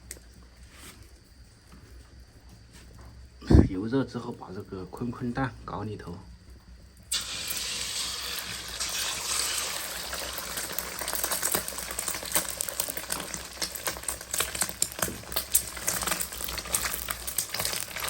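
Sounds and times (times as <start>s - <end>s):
egg sizzling in oil: 7.1s - 18.0s.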